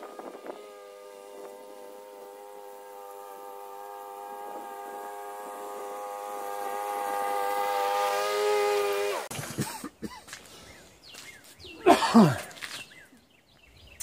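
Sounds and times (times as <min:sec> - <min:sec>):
lawnmower engine running: 0:00.0 - 0:09.6.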